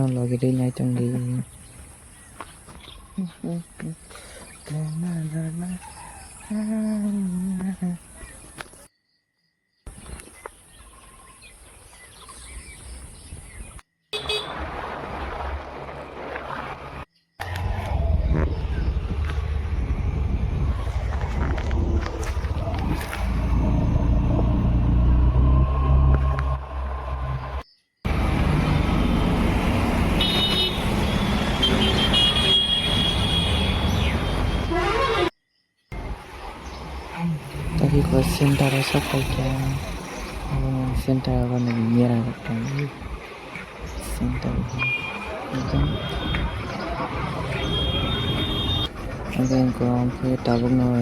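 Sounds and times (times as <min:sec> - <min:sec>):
road traffic: 0:13.4 - 0:51.0
high-pitched vehicle horn honking: 0:14.2 - 0:14.6, 0:30.2 - 0:35.4, 0:47.5 - 0:48.9.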